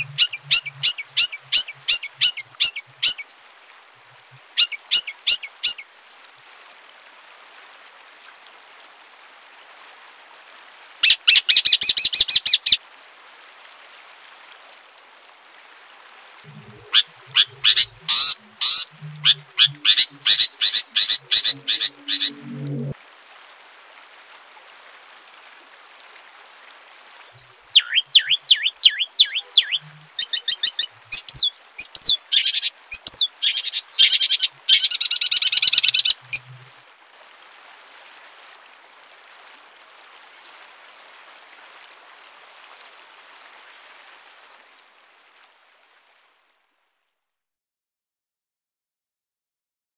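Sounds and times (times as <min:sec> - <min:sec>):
songbird chirping and trilling: 0:00.0 - 0:03.2, 0:04.6 - 0:06.2, 0:16.5 - 0:22.4, 0:27.4 - 0:36.5.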